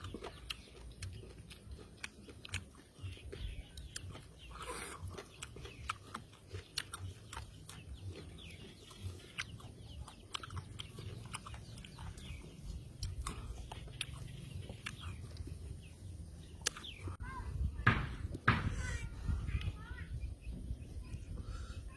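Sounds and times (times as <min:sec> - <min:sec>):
wet chewing and mouth smacking: 0:00.0 - 0:17.2.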